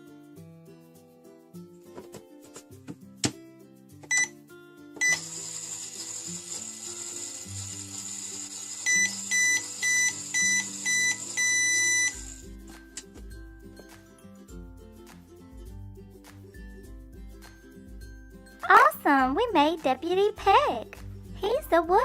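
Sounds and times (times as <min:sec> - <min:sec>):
microwave oven beeps: 0:04.1 - 0:04.4, 0:05.0 - 0:12.5
microwave oven humming: 0:05.0 - 0:12.6
background music: 0:11.5 - 0:22.0.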